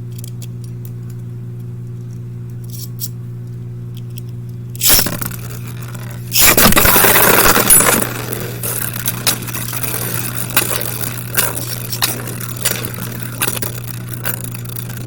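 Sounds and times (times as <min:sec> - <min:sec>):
steady low hum: 0:00.0 - 0:15.0
sharp loud clack: 0:04.8 - 0:14.5
spinning tops clattering in plastic stadium: 0:04.8 - 0:15.0.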